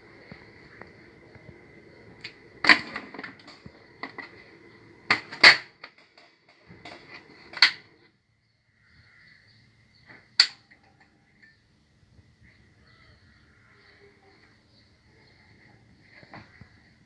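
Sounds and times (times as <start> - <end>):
faint high whine: 0.0 - 9.4.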